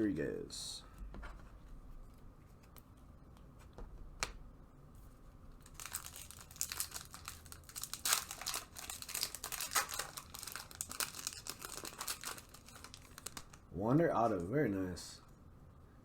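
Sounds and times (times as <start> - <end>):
foil wrapper crinkling: 5.6 - 13.6.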